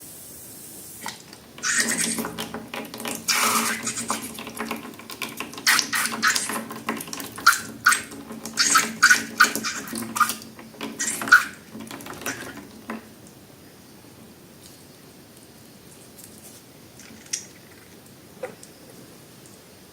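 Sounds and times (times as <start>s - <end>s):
faint steady hum: 0.0s - 19.9s
wet squelching slime: 1.0s - 12.7s
small squeaks: 1.6s - 2.6s, 3.2s - 4.4s, 5.6s - 6.7s, 7.4s - 12.6s.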